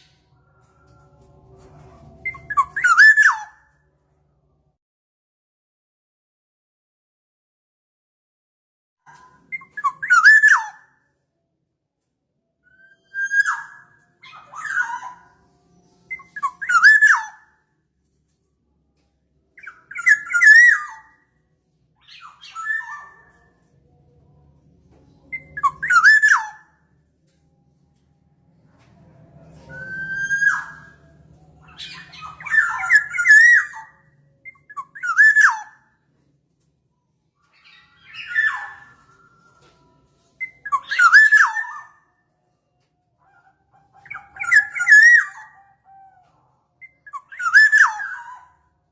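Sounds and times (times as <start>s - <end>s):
bird calling: 25.3s - 26.6s.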